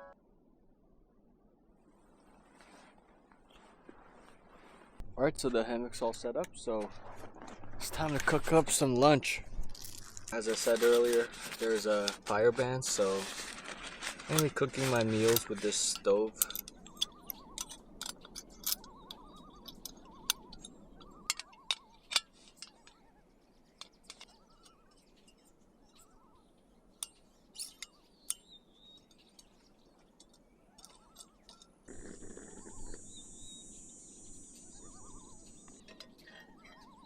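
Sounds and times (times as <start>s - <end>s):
camp stove and pan clicking: 9.6s - 23.1s, 23.7s - 33.7s, 34.5s - 37.0s.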